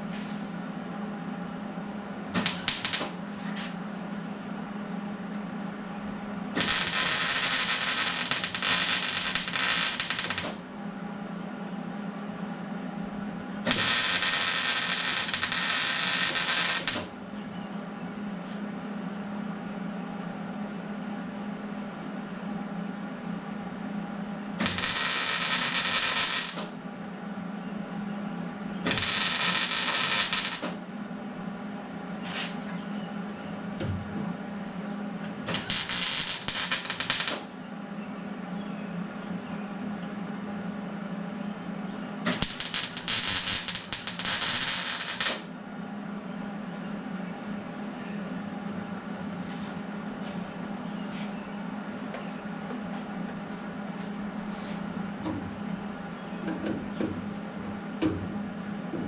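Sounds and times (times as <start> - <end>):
steady low hum: 0.0 - 59.0
welding crackling hiss: 2.4 - 3.2, 6.6 - 10.6, 13.7 - 17.1, 24.6 - 26.7, 28.9 - 30.8, 35.5 - 37.5, 42.3 - 45.5.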